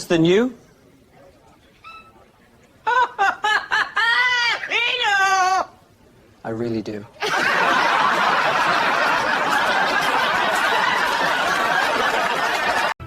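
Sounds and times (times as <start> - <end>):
crowd laughing: 2.9 - 4.8, 7.2 - 13.0.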